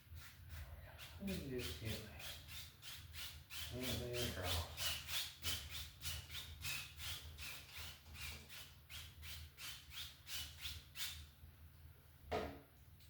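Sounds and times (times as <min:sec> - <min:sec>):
paintbrush scraping on canvas: 0:00.0 - 0:02.6.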